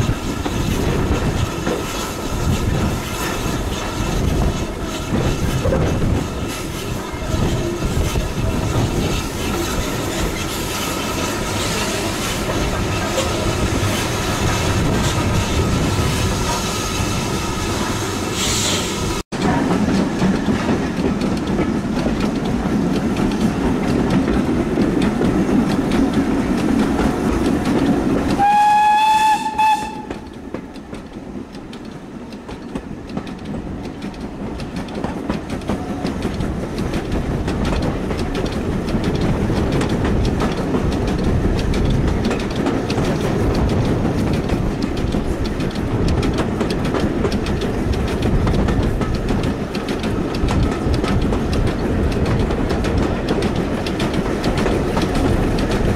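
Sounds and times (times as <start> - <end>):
train running on rails: 0.0 - 55.9
locomotive whistle: 28.4 - 30.3.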